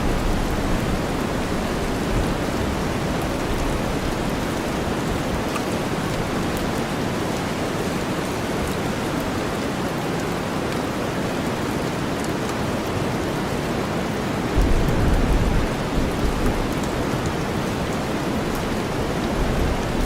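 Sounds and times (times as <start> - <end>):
steady rain hiss: 0.0 - 20.0
deep white noise: 14.6 - 20.0
raindrop ticks: 14.6 - 20.0.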